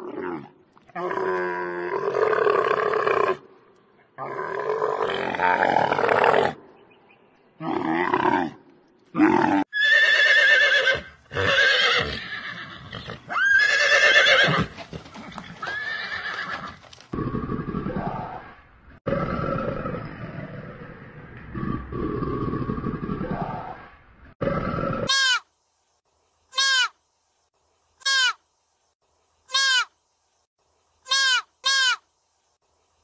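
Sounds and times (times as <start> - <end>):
horse neighing: 9.2 - 16.8.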